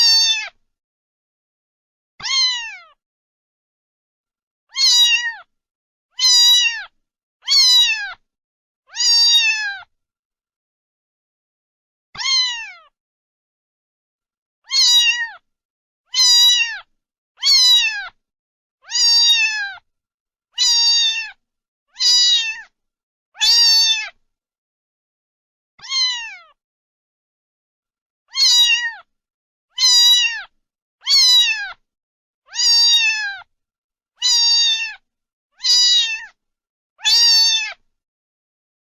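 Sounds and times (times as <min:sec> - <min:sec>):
cat meowing: 0:00.0 - 0:00.6, 0:02.2 - 0:03.0, 0:04.7 - 0:05.5, 0:06.2 - 0:08.2, 0:08.9 - 0:09.9, 0:12.2 - 0:13.0, 0:14.6 - 0:15.4, 0:16.1 - 0:18.2, 0:18.8 - 0:19.8, 0:20.6 - 0:21.4, 0:22.0 - 0:22.7, 0:23.4 - 0:24.2, 0:25.8 - 0:26.6, 0:28.3 - 0:29.1, 0:29.7 - 0:31.8, 0:32.5 - 0:33.5, 0:34.2 - 0:35.0, 0:35.6 - 0:36.4, 0:37.0 - 0:37.8.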